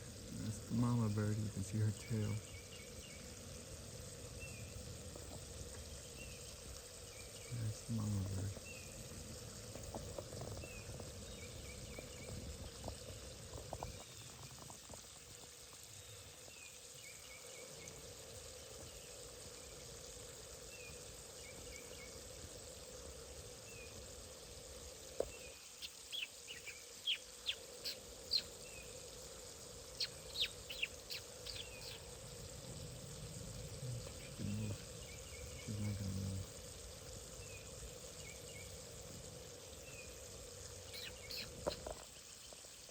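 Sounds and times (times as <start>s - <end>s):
faint outdoor background hum: 0.0s - 42.9s
birds chirping: 0.3s - 3.3s, 7.2s - 9.0s, 25.3s - 28.9s, 29.9s - 32.5s, 33.6s - 36.6s, 40.8s - 42.0s.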